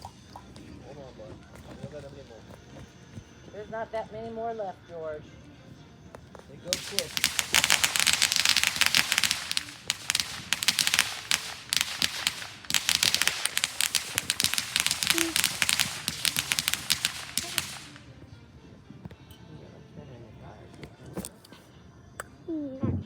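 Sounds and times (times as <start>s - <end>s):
fireworks crackling: 6.3s - 18.2s.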